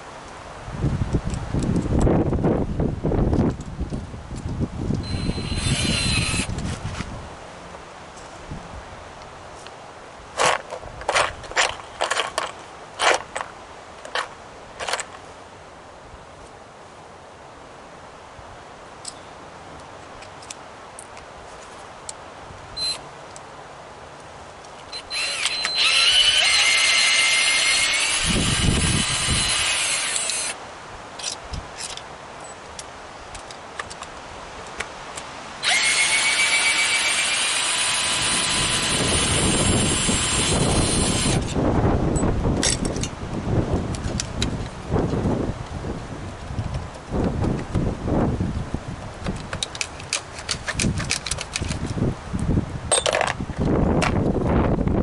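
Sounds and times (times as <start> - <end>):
wind rumbling on microphone: 0.0 - 9.6, 25.0 - 32.0, 33.2 - 55.0
power tool whining: 5.0 - 6.6, 24.9 - 30.6, 35.6 - 41.6
tools clicking and knocking: 49.2 - 52.0, 52.9 - 53.4.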